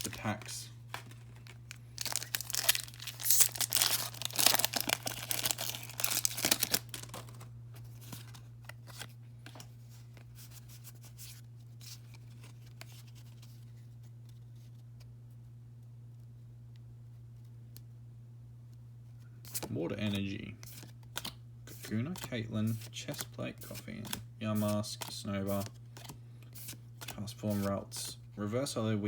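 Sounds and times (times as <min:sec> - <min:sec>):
plastic packaging tearing and crinkling: 0:00.0 - 0:07.5.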